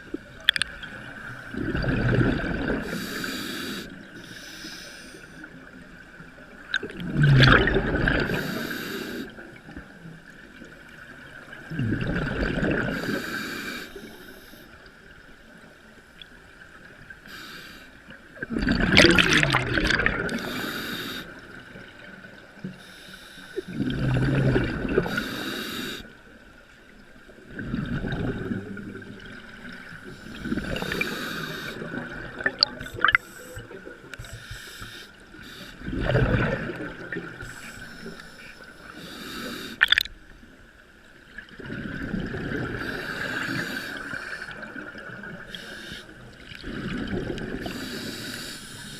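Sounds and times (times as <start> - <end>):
rushing water: 16.8 - 22.6, 27.3 - 40.2.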